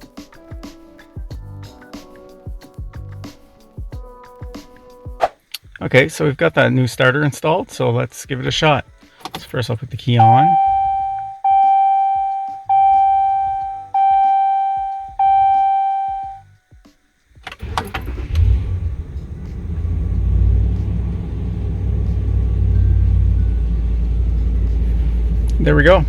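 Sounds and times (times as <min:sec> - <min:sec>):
warning chime dinging: 0:10.2 - 0:16.4
engine cranking and starting: 0:17.4 - 0:25.7
engine idling: 0:17.6 - 0:26.0.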